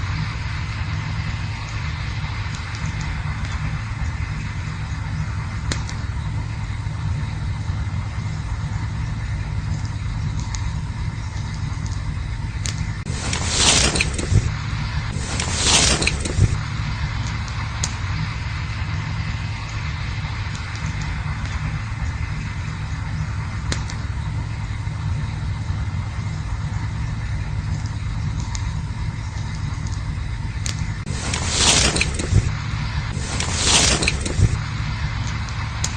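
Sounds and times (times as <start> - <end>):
campfire burning and crackling: 0.0 - 35.9
campfire pops: 2.5 - 6.3, 12.6 - 24.3.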